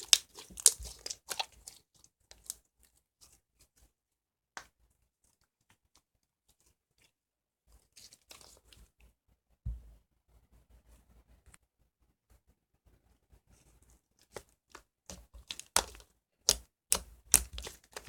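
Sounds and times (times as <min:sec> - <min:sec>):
slime crackling: 0:00.0 - 0:01.8, 0:15.1 - 0:18.0
low thump: 0:09.7 - 0:10.0
slime popping: 0:15.4 - 0:18.0.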